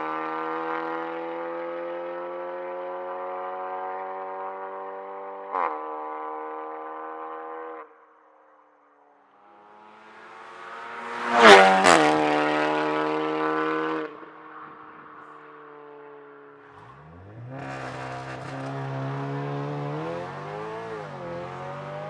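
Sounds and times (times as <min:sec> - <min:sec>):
car engine drone: 0:09.4 - 0:22.0
car passing close: 0:09.7 - 0:15.8, 0:16.6 - 0:22.0.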